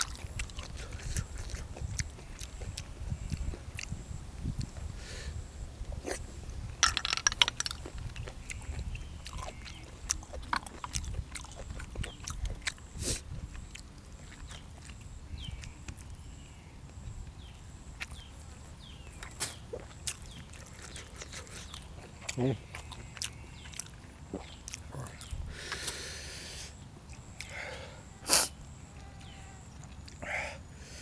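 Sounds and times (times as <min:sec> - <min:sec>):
wet chewing and lip-smacking: 0:00.0 - 0:04.9, 0:07.2 - 0:16.3, 0:18.0 - 0:25.8, 0:28.9 - 0:30.2.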